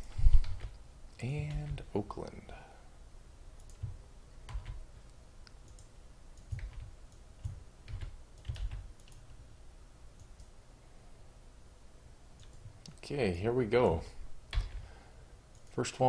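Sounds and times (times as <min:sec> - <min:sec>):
computer keyboard keystrokes: 0:00.4 - 0:00.8, 0:01.4 - 0:01.8, 0:03.6 - 0:04.8, 0:05.6 - 0:09.2, 0:14.5 - 0:14.8.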